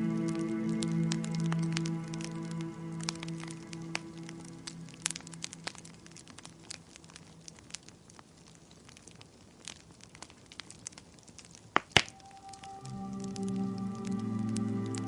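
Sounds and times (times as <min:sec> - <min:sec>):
soft music: 0:00.0 - 0:06.8, 0:12.1 - 0:15.0
wood fire crackling: 0:00.0 - 0:15.0.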